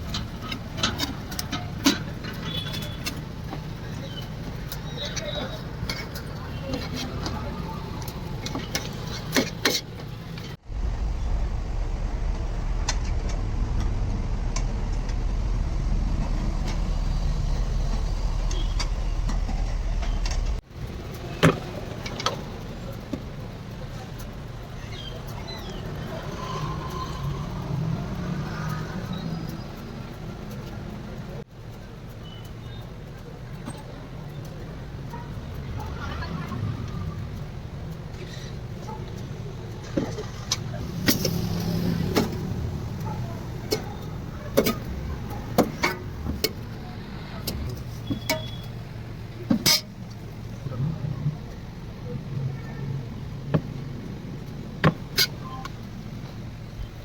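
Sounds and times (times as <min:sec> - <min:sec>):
steady low rumble: 0:10.4 - 0:26.3, 0:48.7 - 0:57.0.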